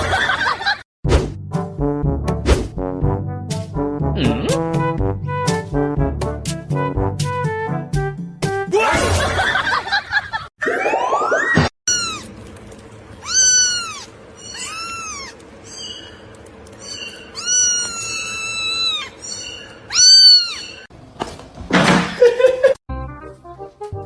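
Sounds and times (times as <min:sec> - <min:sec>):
cat meowing: 0:11.9 - 0:12.3, 0:13.2 - 0:15.4, 0:17.3 - 0:20.8.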